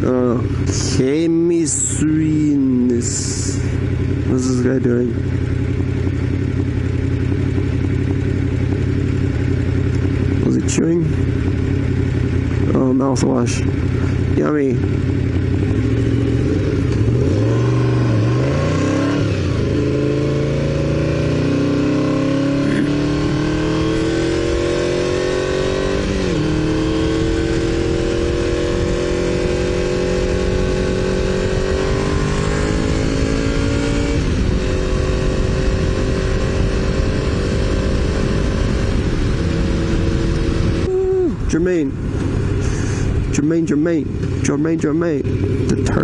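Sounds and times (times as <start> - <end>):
motorcycle engine accelerating: 0.0 - 46.0
wind rushing over microphone: 23.0 - 44.4.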